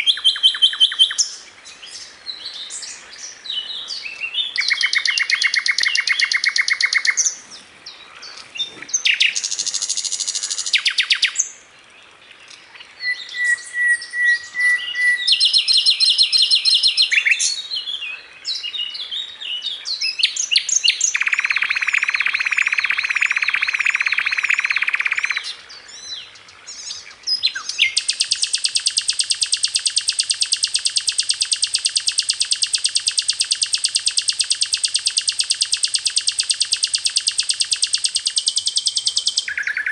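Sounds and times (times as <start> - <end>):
bird singing rapid trills: 0.0 - 7.4, 8.9 - 11.5, 13.0 - 17.6, 19.9 - 39.9.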